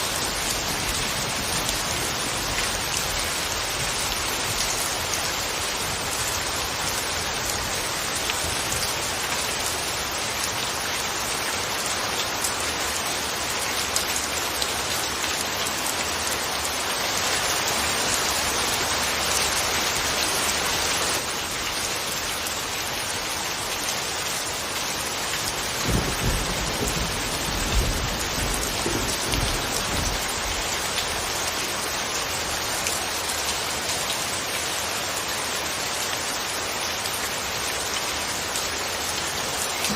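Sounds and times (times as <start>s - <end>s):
steady rain falling: 0.0s - 39.9s
thunder rumbling: 25.8s - 30.6s.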